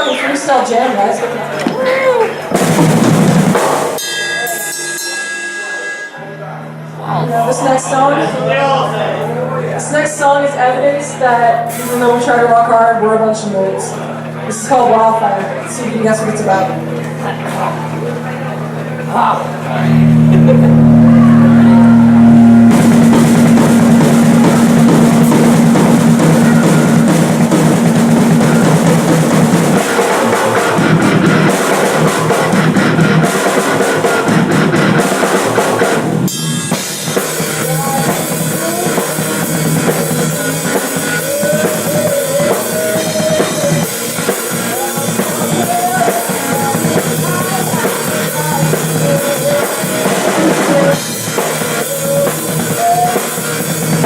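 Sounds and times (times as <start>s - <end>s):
rock band playing live: 0.8s - 5.9s, 13.8s - 54.0s
drum kit kick snare and cymbals: 2.5s - 5.1s, 17.6s - 54.0s.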